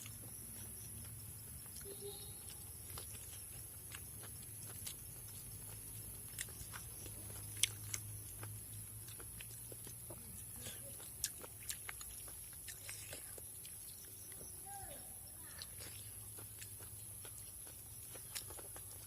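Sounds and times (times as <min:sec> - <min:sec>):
person chewing: 0:00.0 - 0:14.5, 0:15.4 - 0:19.0.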